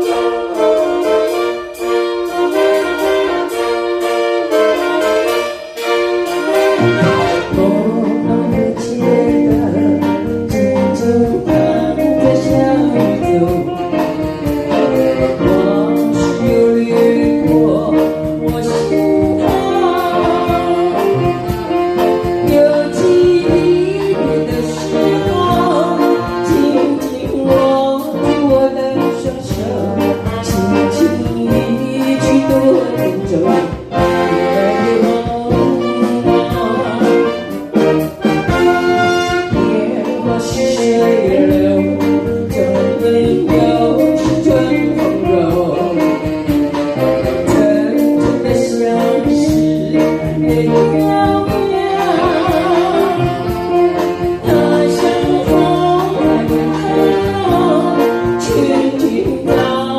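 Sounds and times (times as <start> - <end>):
folk band playing pop song: 0.0 - 59.9.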